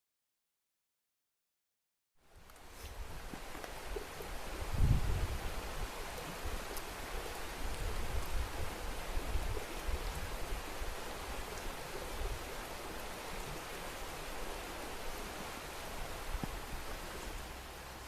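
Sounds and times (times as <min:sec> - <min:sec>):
wind blowing: 0:02.4 - 0:18.0
gusts buffeting microphone: 0:04.4 - 0:14.3.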